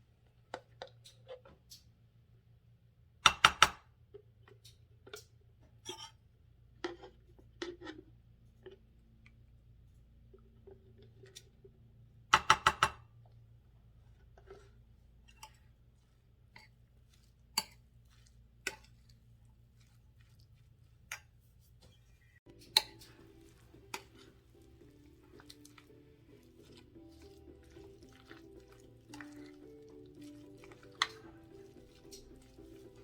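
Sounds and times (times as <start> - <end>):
soft background music: 22.3 - 33.0.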